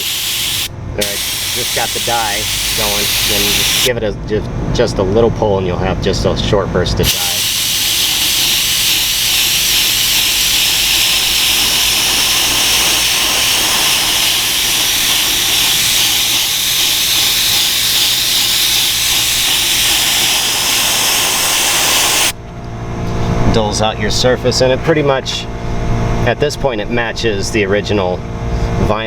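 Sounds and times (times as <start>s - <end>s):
air spray gun hissing: 0.0s - 3.9s, 7.0s - 22.4s.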